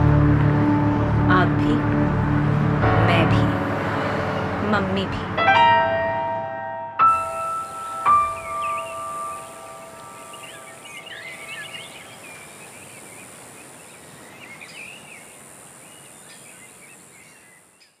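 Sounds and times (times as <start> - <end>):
held piano notes: 0.0 - 11.8
steady outdoor hiss: 7.0 - 18.0
small birds chirping: 7.2 - 18.0.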